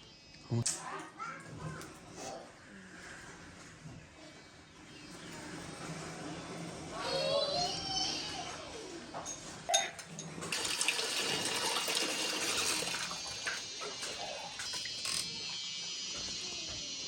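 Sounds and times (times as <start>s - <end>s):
water running and splashing: 10.5s - 15.0s.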